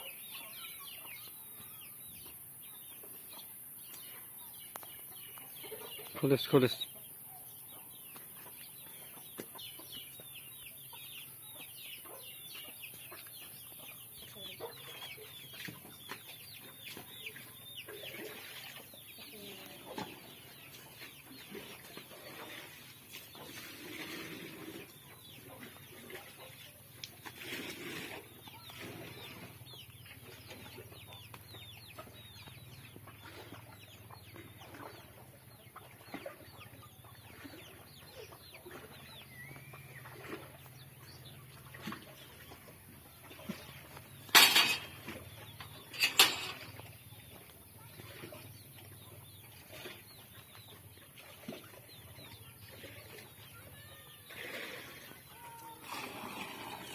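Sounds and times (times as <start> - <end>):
birds calling: 0.0 - 56.9.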